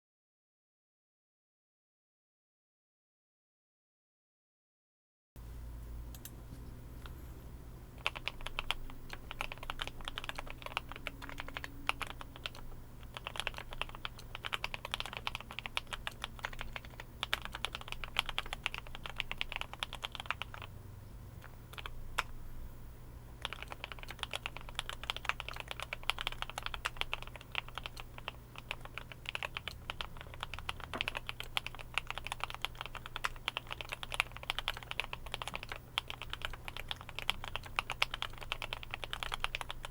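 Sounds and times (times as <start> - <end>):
mechanical keyboard typing: 8.0 - 20.7, 21.4 - 22.4, 23.4 - 39.9.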